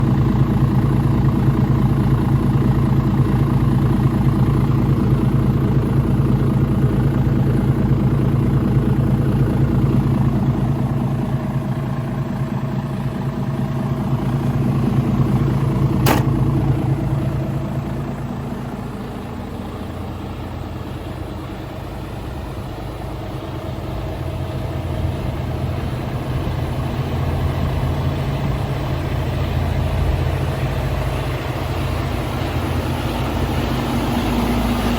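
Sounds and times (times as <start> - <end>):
diesel truck engine idling: 0.0 - 34.9
sharp click: 16.0 - 16.4.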